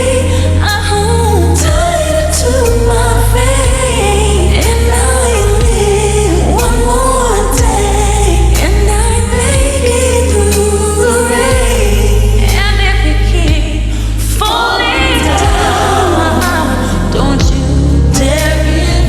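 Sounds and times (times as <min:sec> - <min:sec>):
backing singers: 0:00.0 - 0:19.0
woman singing: 0:00.0 - 0:19.0
band playing: 0:14.7 - 0:17.7.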